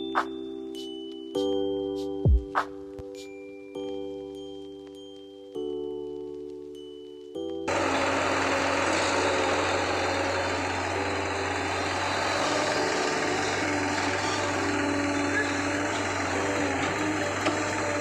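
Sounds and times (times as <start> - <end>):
heavy machinery diesel engine: 7.7 - 18.0.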